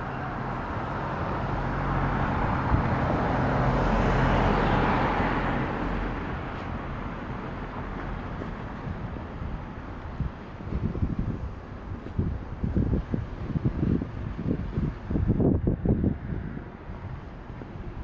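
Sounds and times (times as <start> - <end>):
car passing by: 0.0 - 7.1.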